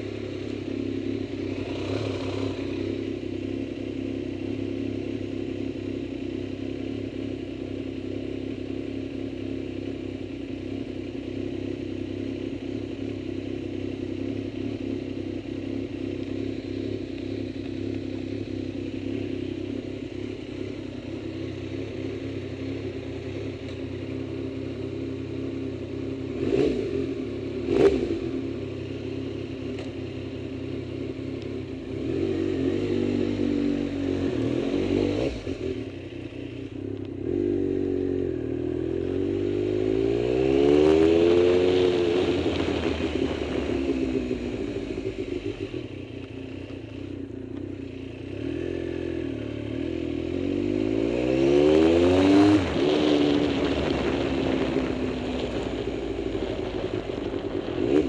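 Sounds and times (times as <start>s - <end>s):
vehicle engine revving: 0.0s - 3.2s, 26.1s - 58.0s.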